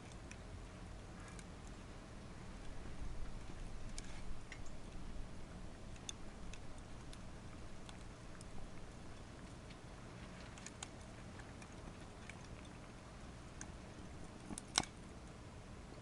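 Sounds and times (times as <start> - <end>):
low steady rumble: 0.0 - 16.0
wood fire crackling: 0.0 - 16.0.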